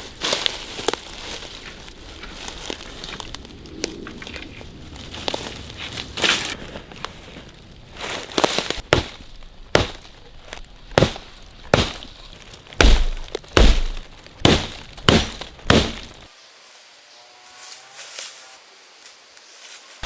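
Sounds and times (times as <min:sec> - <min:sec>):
heavier thud: 0:08.9 - 0:10.1, 0:11.0 - 0:12.1, 0:12.8 - 0:16.3
sharp knocks: 0:08.9 - 0:10.1, 0:10.9 - 0:12.1, 0:12.8 - 0:16.3.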